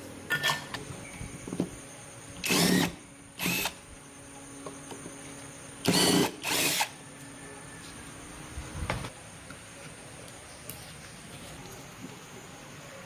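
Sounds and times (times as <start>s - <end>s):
power drill bursts: 2.4s - 3.8s, 5.8s - 7.0s.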